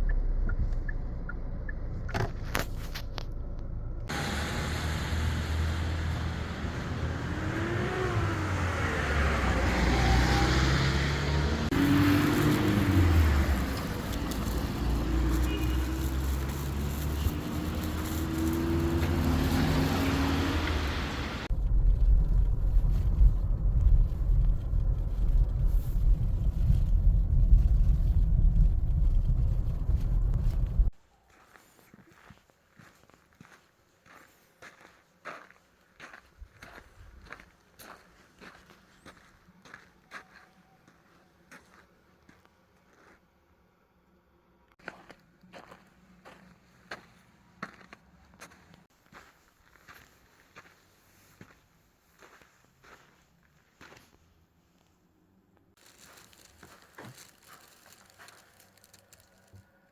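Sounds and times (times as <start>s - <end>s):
car engine rumble: 0.0s - 30.9s
road noise: 0.0s - 31.0s, 43.6s - 59.9s.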